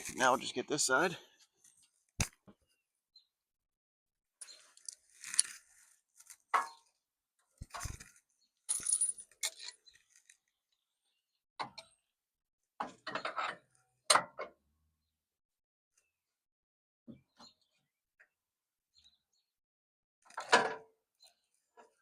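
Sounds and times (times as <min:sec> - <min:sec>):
metal hardware clinking and rattling: 0:08.7 - 0:09.8.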